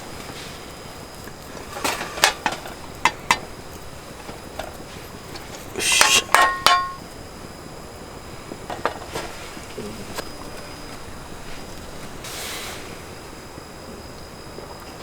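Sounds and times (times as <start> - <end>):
metal cookware clatter: 1.5 - 3.5, 5.4 - 7.1
metal cookware knocks and clinks: 6.0 - 7.0.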